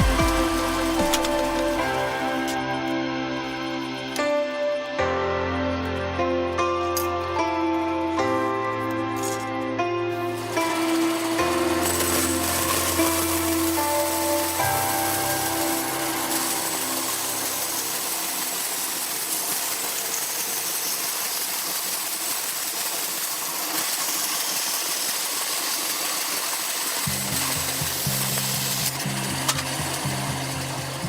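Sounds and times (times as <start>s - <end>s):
rhythmic bass line: 0.0s - 2.8s
background music: 0.0s - 19.3s
steady hiss: 10.1s - 31.0s.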